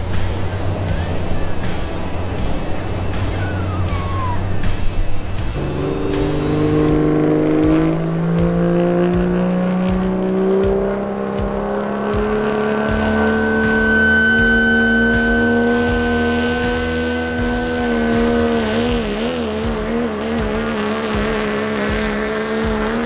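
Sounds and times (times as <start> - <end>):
diesel truck engine under load: 0.0 - 14.5
high steady whine: 0.0 - 22.2.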